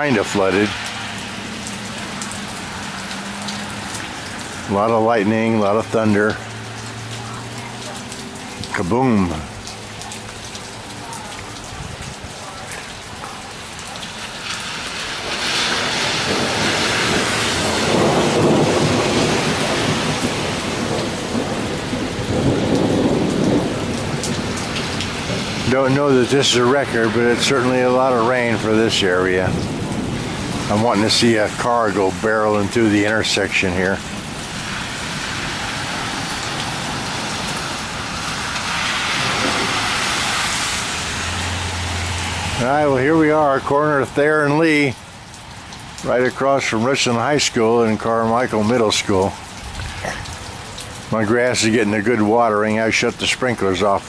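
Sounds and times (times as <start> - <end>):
heavy rain pouring: 0.0 - 54.0
thunder rumbling: 14.2 - 44.1.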